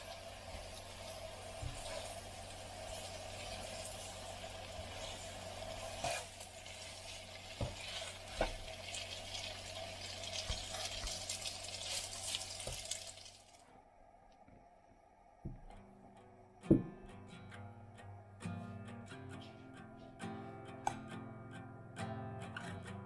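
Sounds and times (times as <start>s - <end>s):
hissing kitchen noise: 0.0s - 15.9s.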